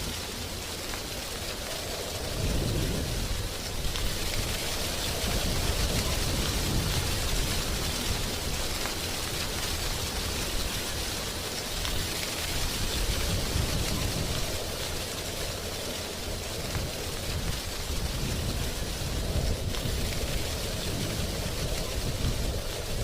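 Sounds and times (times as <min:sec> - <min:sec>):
dry leaves rustling: 0:00.0 - 0:23.0
low wind rumble: 0:00.0 - 0:23.0.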